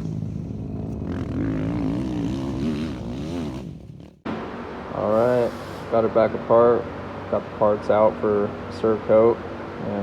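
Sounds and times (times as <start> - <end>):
dirt bike engine revving: 0.0 - 4.2.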